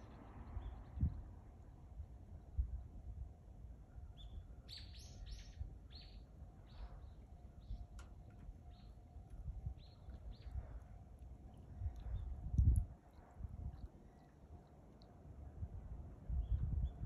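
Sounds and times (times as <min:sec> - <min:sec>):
low background rumble: 0:00.0 - 0:17.0
small bird chirping: 0:04.2 - 0:07.8.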